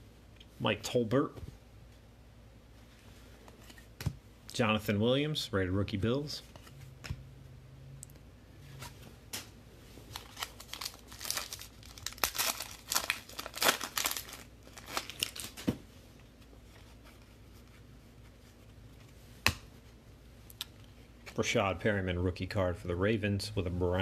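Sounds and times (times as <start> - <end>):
plastic wrapper crinkling and tearing: 10.1 - 15.6.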